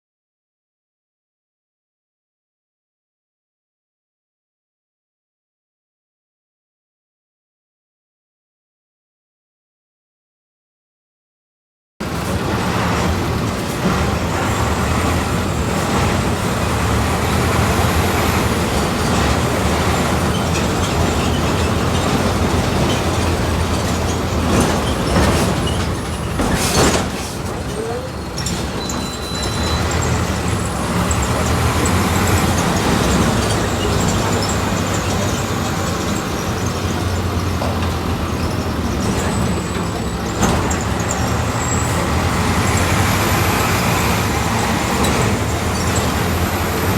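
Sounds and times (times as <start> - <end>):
bus engine running: 12.0 - 46.9.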